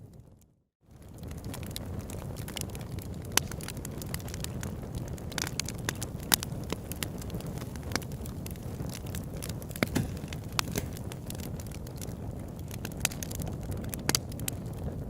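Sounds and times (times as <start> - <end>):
burning wood popping and snapping: 0.9 - 15.0
flames rushing: 0.9 - 15.0.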